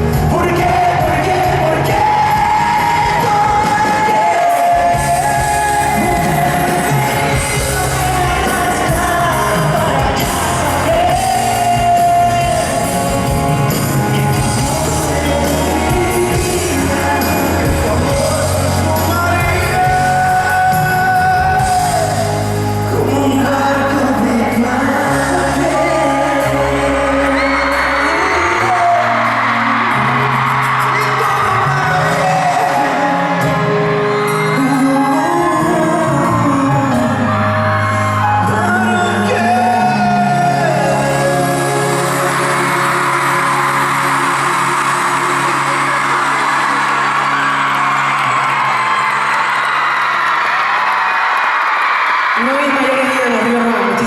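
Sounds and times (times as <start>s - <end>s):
men singing a pop ballad: 0.0s - 47.2s
backing band: 0.0s - 54.0s
audience shouting: 41.9s - 54.0s.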